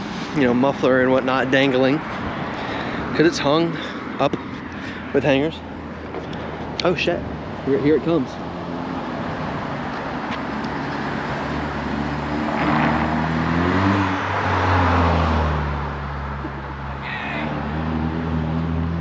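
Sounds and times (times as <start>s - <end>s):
car accelerating past: 10.9s - 16.4s, 17.4s - 19.0s.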